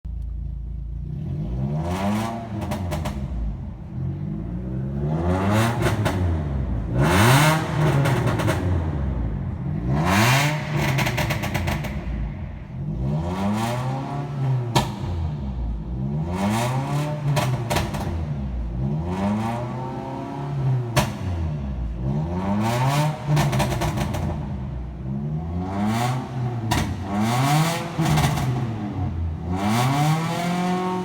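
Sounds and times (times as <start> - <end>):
car engine revving: 1.0 - 31.0
exhaust pops and crackles: 20.9 - 21.4.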